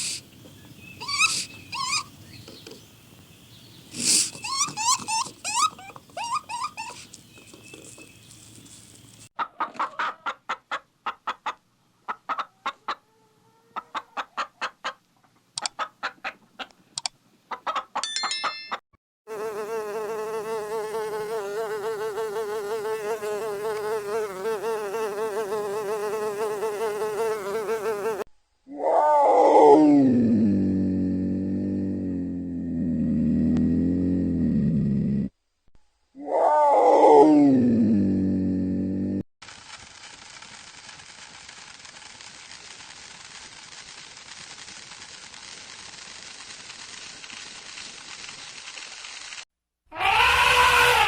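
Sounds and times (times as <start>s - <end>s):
rapid clicking calls: 0.0s - 2.9s, 3.8s - 9.3s, 39.4s - 49.4s
flying insect buzzing: 1.0s - 2.6s, 3.8s - 9.3s, 19.3s - 28.3s.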